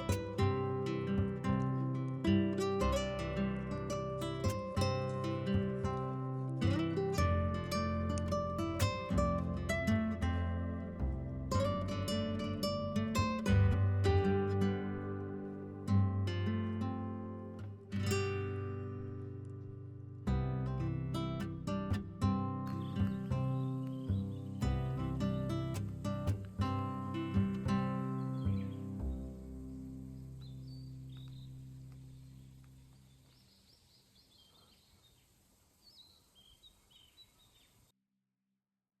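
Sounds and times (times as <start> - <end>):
background music: 0.0 - 18.8
acoustic guitar chords: 0.0 - 33.0
soft background hiss: 0.0 - 37.9
birds chirping: 20.8 - 37.9.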